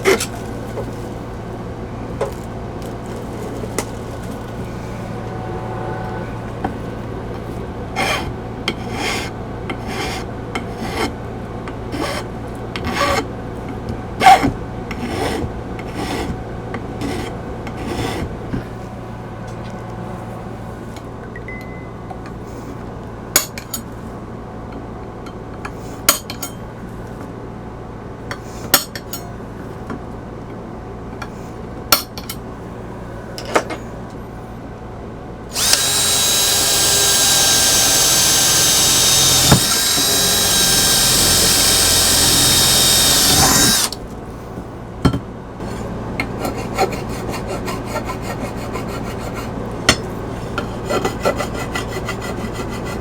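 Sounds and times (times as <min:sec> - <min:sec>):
electric drill whining: 0:35.5 - 0:44.0.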